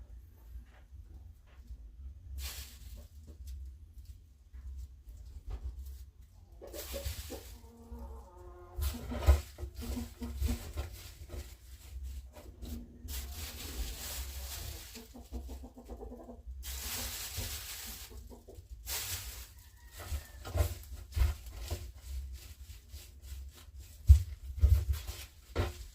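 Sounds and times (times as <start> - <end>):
rustling: 0.8 - 25.9
chickens clucking: 6.3 - 21.8.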